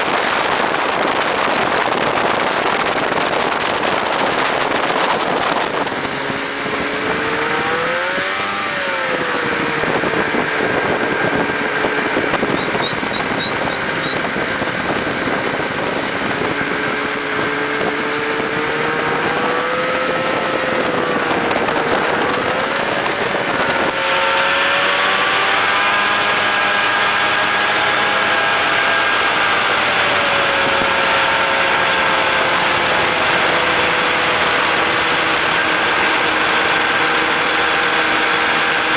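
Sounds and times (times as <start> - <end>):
buggy engine revving: 0.0 - 38.9
wind and road noise: 0.0 - 38.9.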